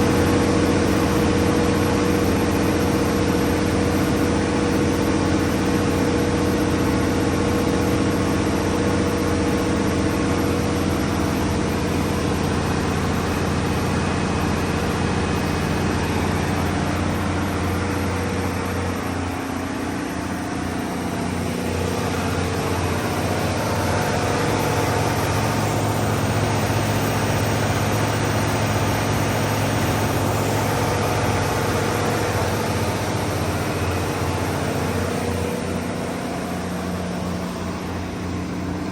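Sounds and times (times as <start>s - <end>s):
diesel generator engine running: 0.0s - 38.9s.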